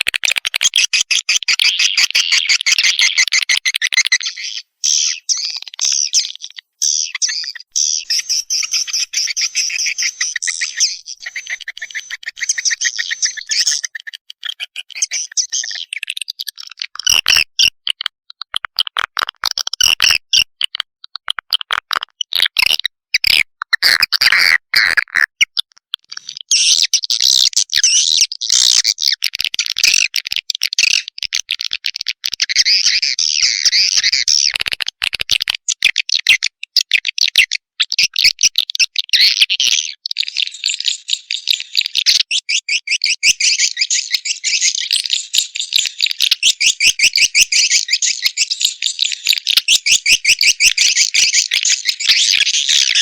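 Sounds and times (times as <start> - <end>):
chick calls: 0.0 - 17.4
swiftlets chirping and twittering: 0.2 - 17.1, 40.2 - 53.0.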